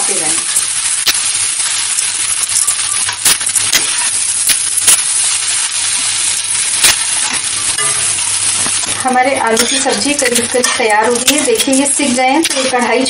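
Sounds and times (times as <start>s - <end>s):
vegetables sizzling in a pan: 0.0s - 13.0s
spatula scraping and clicking on pan: 6.8s - 12.9s.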